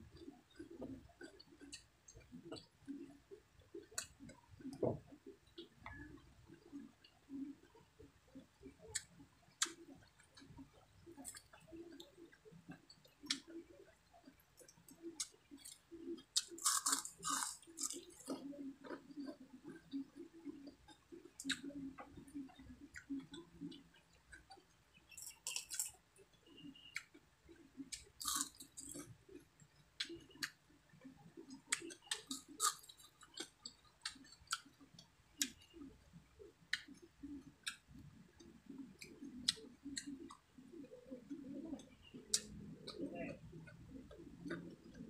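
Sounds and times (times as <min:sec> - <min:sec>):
lip smacks and clicks: 0:00.2 - 0:45.0
wet chewing: 0:07.6 - 0:35.6, 0:39.0 - 0:45.0.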